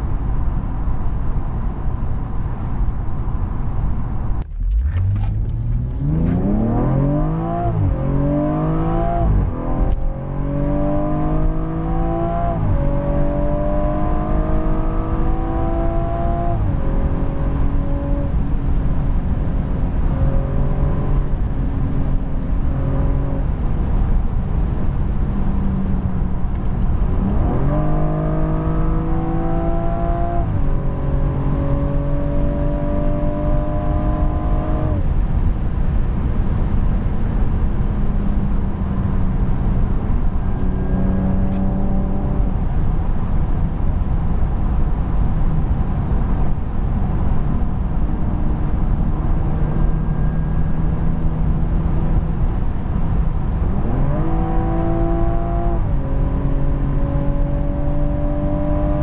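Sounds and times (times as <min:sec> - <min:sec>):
road and wind noise: 0:00.0 - 0:59.0
car engine accelerating: 0:00.1 - 0:59.0.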